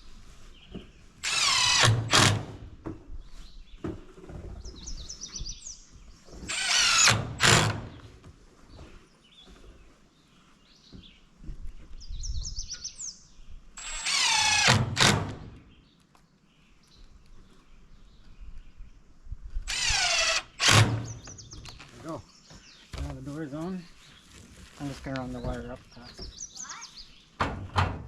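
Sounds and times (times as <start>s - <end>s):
power drill spinning down: 13.8s - 15.1s.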